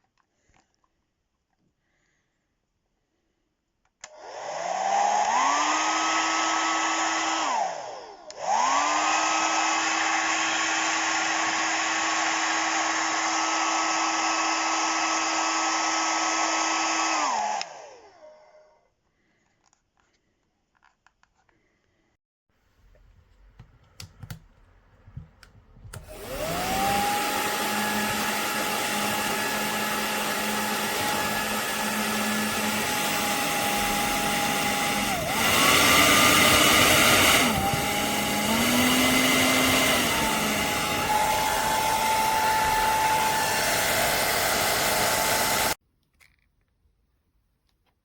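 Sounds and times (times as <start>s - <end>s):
hair dryer running: 4.0s - 18.3s, 25.9s - 45.8s.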